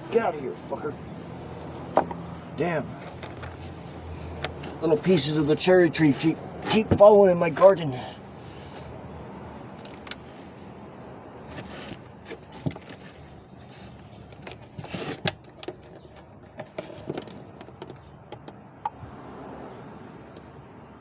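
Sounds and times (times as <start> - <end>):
faint steady background noise: 0.0 - 21.0
light clicks and knocks of tools: 9.7 - 10.3.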